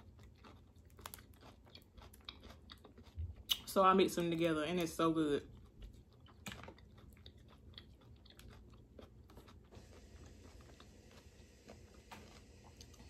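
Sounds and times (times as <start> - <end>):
person chewing crawfish: 0.0 - 3.8, 5.4 - 13.0
small clicks and crunches: 0.4 - 3.6, 6.3 - 7.3.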